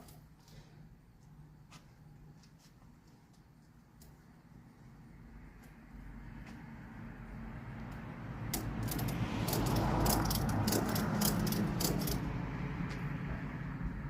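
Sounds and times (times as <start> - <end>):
metal tools clinking: 8.8 - 12.2.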